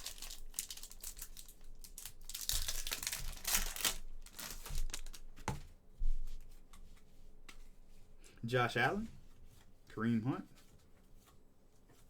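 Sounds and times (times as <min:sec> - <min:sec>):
card pack wrapper crinkling and tearing: 0:00.0 - 0:05.2.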